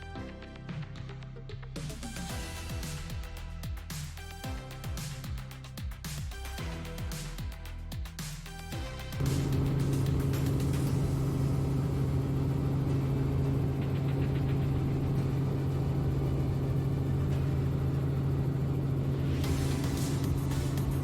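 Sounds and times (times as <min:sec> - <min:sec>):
helicopter engine and rotor drone: 0:08.8 - 0:21.0.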